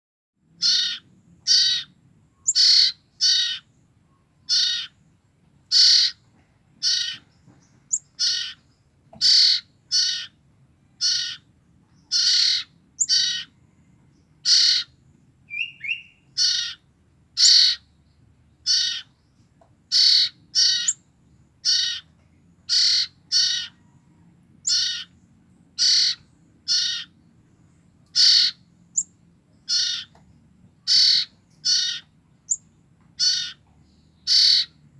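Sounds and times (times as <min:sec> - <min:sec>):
young birds harsh hissy calls: 0:00.6 - 0:03.7, 0:04.5 - 0:05.0, 0:05.7 - 0:06.2, 0:06.8 - 0:07.3, 0:08.0 - 0:08.6, 0:09.2 - 0:10.4, 0:11.0 - 0:11.5, 0:12.1 - 0:13.6, 0:14.4 - 0:14.9, 0:15.6 - 0:16.8, 0:17.4 - 0:17.9, 0:18.6 - 0:19.1, 0:19.9 - 0:21.0, 0:21.6 - 0:22.1, 0:22.7 - 0:23.8, 0:24.6 - 0:25.1, 0:25.8 - 0:27.1, 0:28.2 - 0:28.7, 0:29.7 - 0:30.1, 0:30.8 - 0:32.1, 0:33.2 - 0:33.6, 0:34.3 - 0:34.8.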